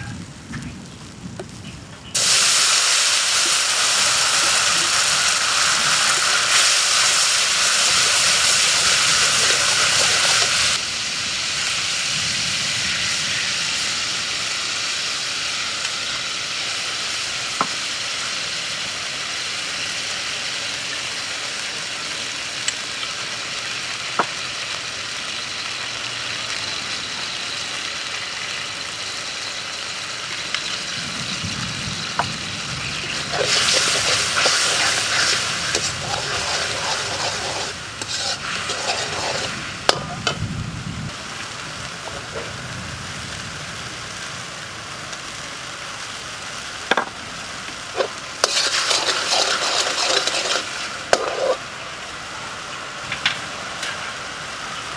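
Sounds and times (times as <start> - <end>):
sauce sizzling in hot oil: 0.8 - 54.9
metal ladle scraping wok: 4.5 - 10.8, 32.9 - 40.4, 47.9 - 51.6.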